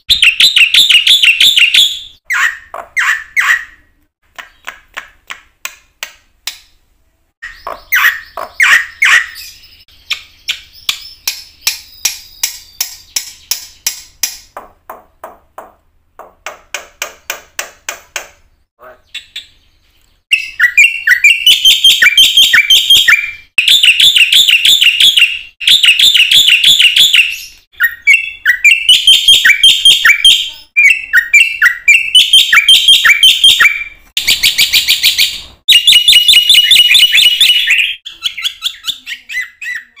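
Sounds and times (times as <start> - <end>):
starling singing chattering phrases: 37.2 - 40.0.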